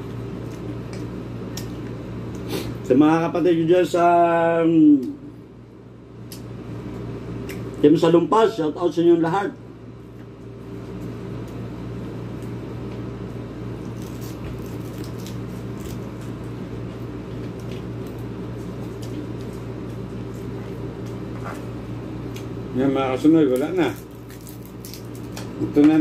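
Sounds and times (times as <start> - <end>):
steady low hum: 0.0 - 26.0
wet chewing clicks: 7.4 - 7.8.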